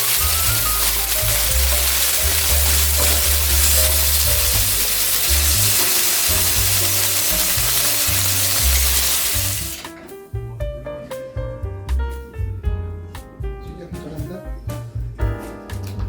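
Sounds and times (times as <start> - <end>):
loud steady hiss: 0.0 - 9.9
background music with bass line: 0.0 - 16.0.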